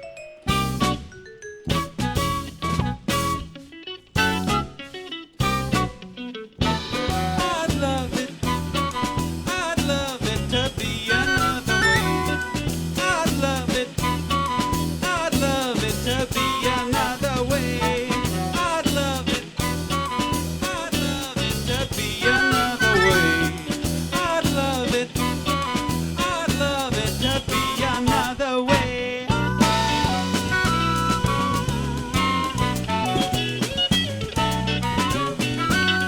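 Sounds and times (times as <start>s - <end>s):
lead melody: 0.0s - 8.0s, 29.3s - 36.0s
bass guitar: 0.2s - 36.0s
drum kit: 0.5s - 36.0s.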